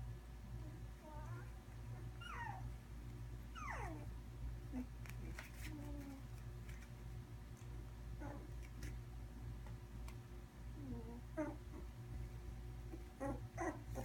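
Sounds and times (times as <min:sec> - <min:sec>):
steady low hum: 0:00.0 - 0:14.0
puppies whimpering: 0:02.2 - 0:02.7, 0:03.5 - 0:04.1, 0:13.2 - 0:14.0.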